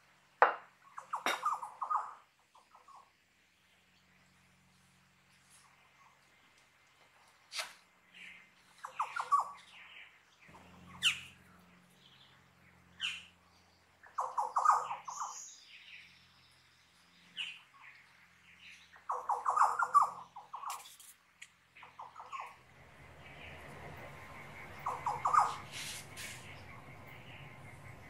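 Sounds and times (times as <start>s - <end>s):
birds rapid chattering: 8.8s - 9.8s, 18.9s - 21.0s, 21.8s - 28.0s.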